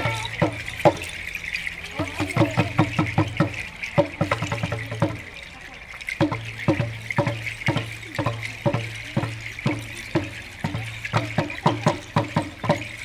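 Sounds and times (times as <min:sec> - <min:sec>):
hand drums beaten: 0:00.0 - 0:13.0.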